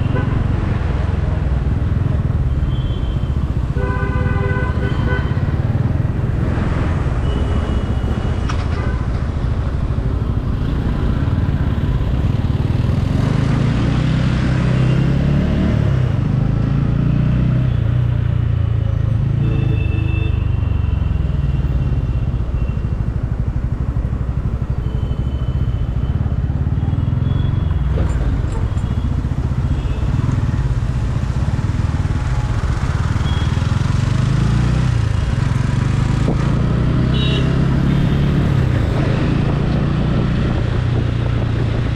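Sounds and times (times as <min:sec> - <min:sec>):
vehicle horns: 0:02.7 - 0:05.6, 0:37.1 - 0:38.4
motorcycle engine revving: 0:29.3 - 0:41.9.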